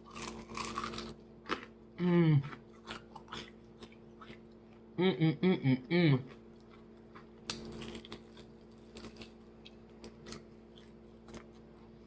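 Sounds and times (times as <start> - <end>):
crunchy chewing: 0.0 - 1.8, 2.4 - 4.9, 6.2 - 12.0
person humming: 2.0 - 2.5, 5.0 - 6.3.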